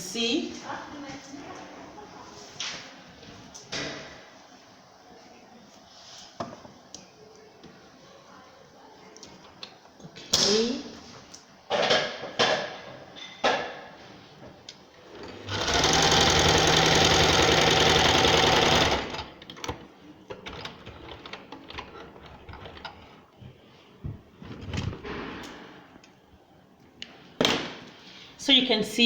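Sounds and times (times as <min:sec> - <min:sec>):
sewing machine stitching: 0:15.2 - 0:19.4.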